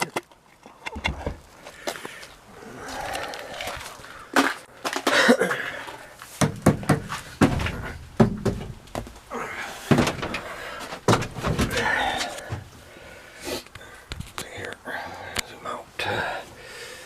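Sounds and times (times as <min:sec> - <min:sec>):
knocks and thumps on plastic hood: 0:06.4 - 0:09.2, 0:09.9 - 0:12.7.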